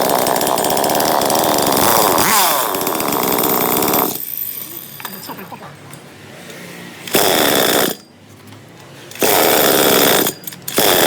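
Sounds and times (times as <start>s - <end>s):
small engine revving: 0.0s - 4.2s.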